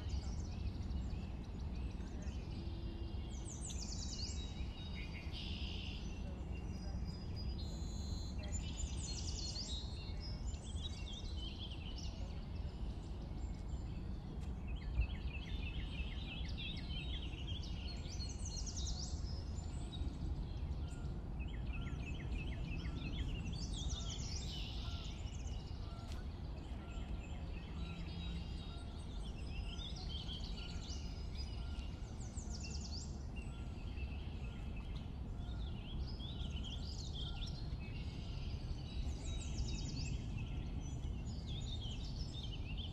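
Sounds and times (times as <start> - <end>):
low background rumble: 0.0 - 42.9.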